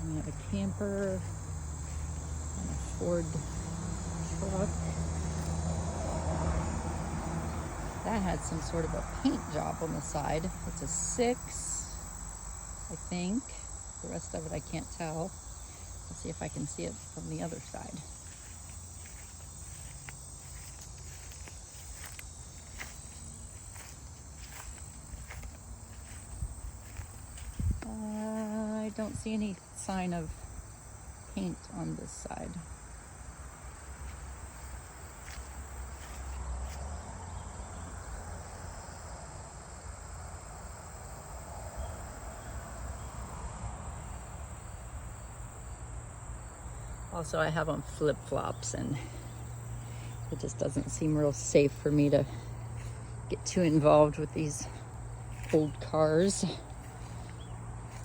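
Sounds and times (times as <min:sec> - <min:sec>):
insects trilling: 0:00.0 - 0:58.0
footsteps in flip-flops: 0:17.5 - 0:28.7, 0:55.2 - 0:58.0.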